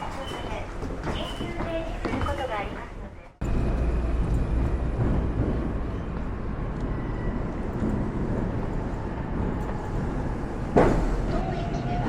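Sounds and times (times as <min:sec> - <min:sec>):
deep city rumble: 0:00.0 - 0:12.0.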